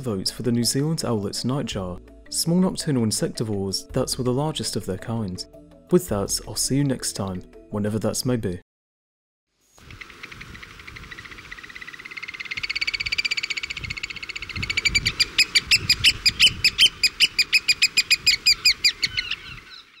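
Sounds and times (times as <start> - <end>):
bird piping trill: 9.8 - 20.0.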